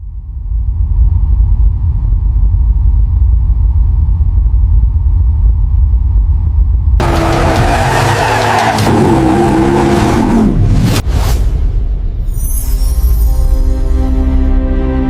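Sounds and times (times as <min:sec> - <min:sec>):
deep low rumble: 0:00.0 - 0:07.7.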